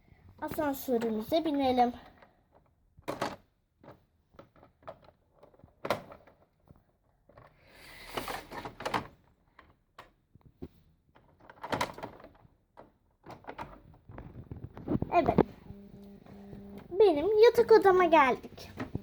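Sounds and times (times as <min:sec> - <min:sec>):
plastic toy clicks and knocks: 0:00.9 - 0:07.6, 0:08.5 - 0:15.4
plastic scraping slide: 0:07.4 - 0:09.1.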